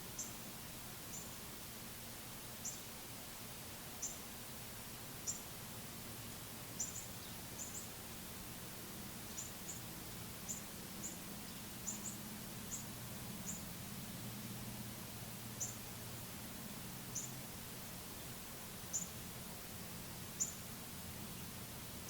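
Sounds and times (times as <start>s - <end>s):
faint low hum: 0.0s - 22.0s
songbird chip notes: 20.3s - 20.7s.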